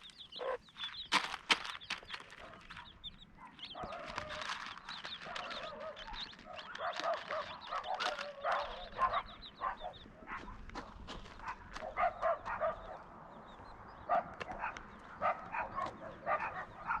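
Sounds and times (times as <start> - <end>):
hen clucking: 0.0 - 1.2, 1.8 - 10.6
chicks peeping: 0.0 - 17.0.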